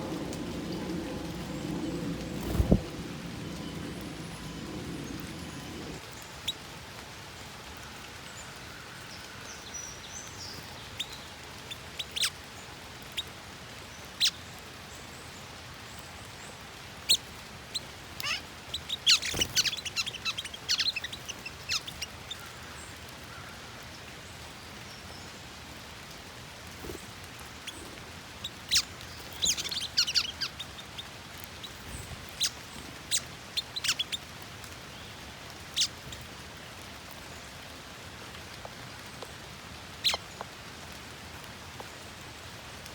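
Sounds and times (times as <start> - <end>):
songbirds chirping: 0.0 - 6.6, 14.0 - 38.0
steady rain: 0.0 - 42.9.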